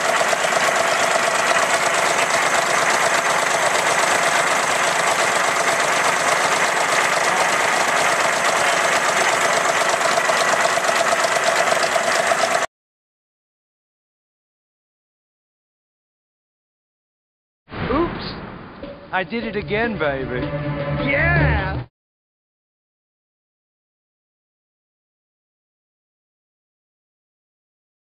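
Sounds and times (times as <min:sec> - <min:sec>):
diesel engine knocking: 0:00.0 - 0:12.7.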